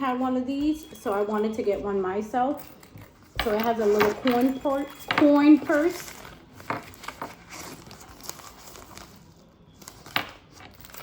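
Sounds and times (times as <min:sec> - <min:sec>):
packaging crinkling and rustling: 0:02.7 - 0:11.0.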